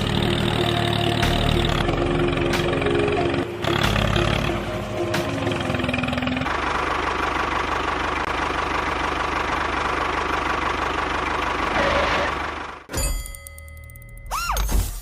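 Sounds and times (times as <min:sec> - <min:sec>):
engine knocking steadily: 0:05.2 - 0:12.9.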